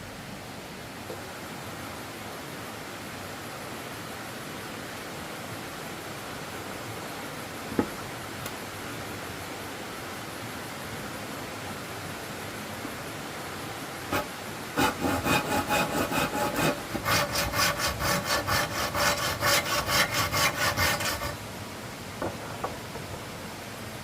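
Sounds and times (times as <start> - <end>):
steady background hiss: 0.0 - 24.0
hand saw cutting wood: 14.1 - 21.4.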